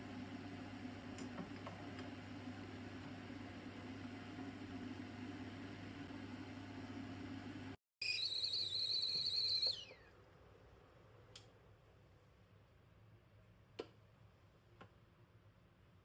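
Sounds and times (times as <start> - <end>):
whistling kettle: 8.0 - 10.2.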